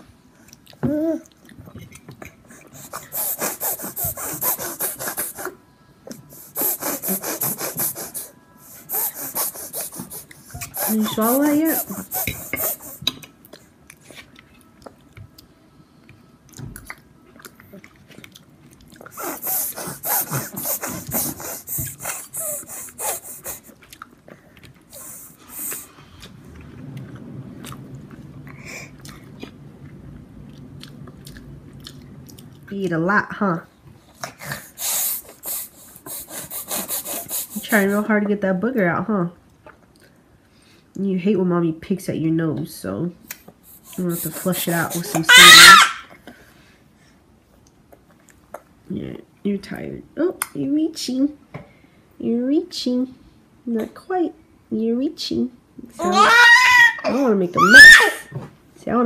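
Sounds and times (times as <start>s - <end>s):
baby breathing through nose: 2.5s - 5.5s, 6.3s - 13.0s, 19.1s - 23.7s, 34.4s - 38.0s
infant chewing: 16.5s - 32.7s.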